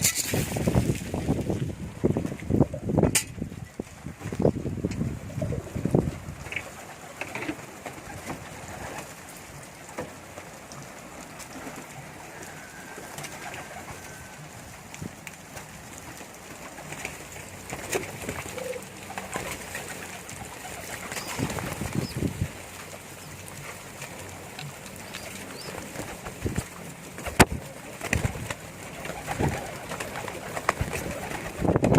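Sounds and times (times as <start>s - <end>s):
pigeons cooing: 10.5s - 31.9s.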